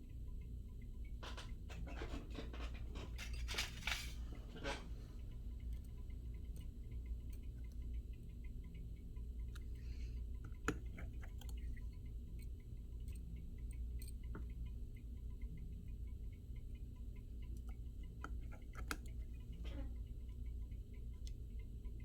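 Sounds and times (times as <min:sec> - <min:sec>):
steady low hum: 0:00.0 - 0:22.0
small tools clicking: 0:09.4 - 0:14.6.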